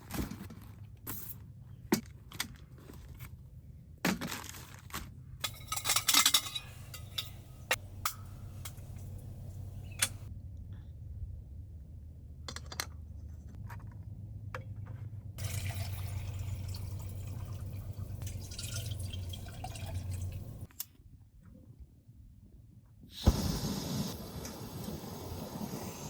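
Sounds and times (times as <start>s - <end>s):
liquid pouring and dripping: 15.4s - 20.7s.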